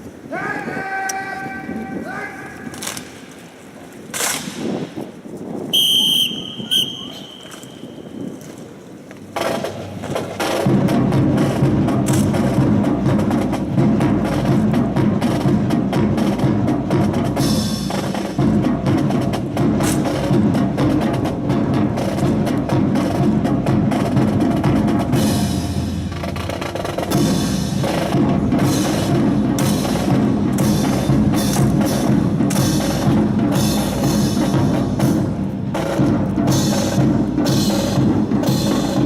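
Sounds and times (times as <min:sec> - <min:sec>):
rifles clacking and slapping: 0:02.5 - 0:05.1, 0:12.0 - 0:12.5
music with drum beat: 0:09.4 - 0:39.0.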